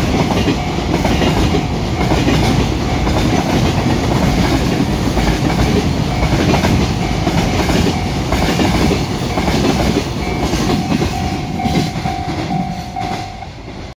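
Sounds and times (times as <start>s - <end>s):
freight train wheels clattering: 0.0s - 13.9s
ringing tone pulses: 8.9s - 13.7s.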